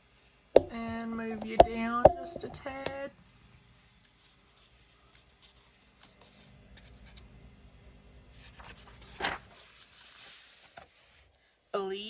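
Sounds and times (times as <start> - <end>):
paper pages rustling: 8.5 - 10.9.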